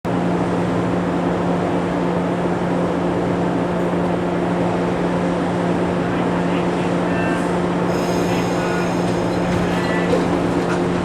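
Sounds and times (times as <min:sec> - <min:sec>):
electric train humming: 0:00.2 - 0:11.0.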